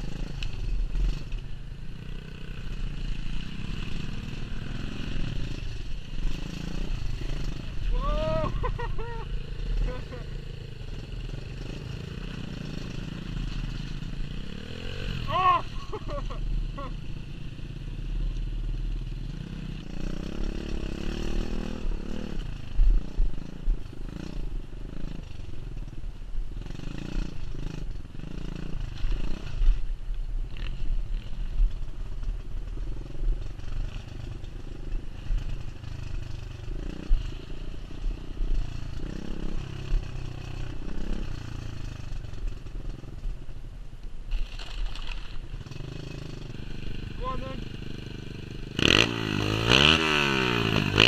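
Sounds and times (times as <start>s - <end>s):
motorbike engine revving: 2.0s - 18.0s, 19.2s - 25.3s, 44.3s - 51.0s.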